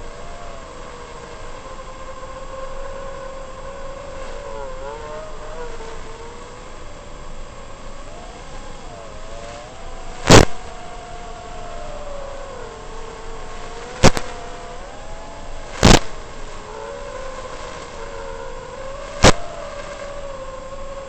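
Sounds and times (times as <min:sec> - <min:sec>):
quadcopter motors whining: 0:00.0 - 0:21.0
sharp loud clicks: 0:09.5 - 0:10.8, 0:13.6 - 0:14.7, 0:15.7 - 0:16.6, 0:19.1 - 0:20.1.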